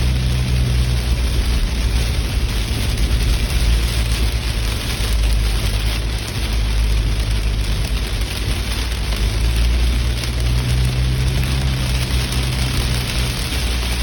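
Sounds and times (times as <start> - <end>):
rain hiss: 0.0 - 14.0
road and engine rumble: 0.0 - 14.0.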